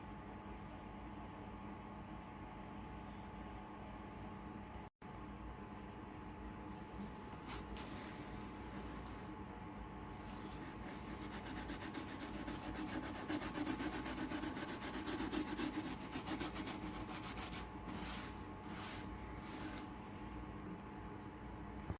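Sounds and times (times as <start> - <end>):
hand rubbing on wood: 10.2 - 19.9.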